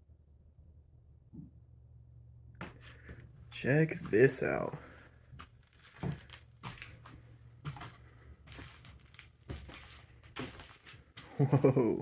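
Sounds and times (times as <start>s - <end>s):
faint knocks and crinkling: 2.6s - 11.4s.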